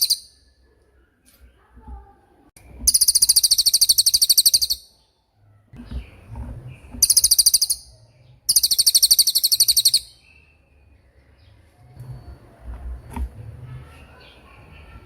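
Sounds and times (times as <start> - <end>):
bird singing fast trills: 0.0 - 0.5, 2.8 - 5.2, 6.8 - 11.5.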